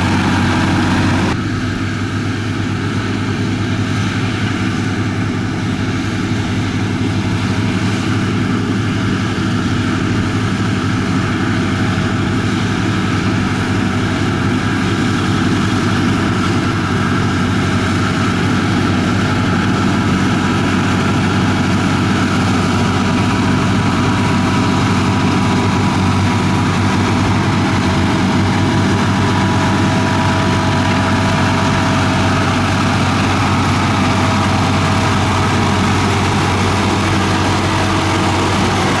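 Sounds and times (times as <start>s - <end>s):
bulldozer diesel engine running: 0.0s - 39.0s.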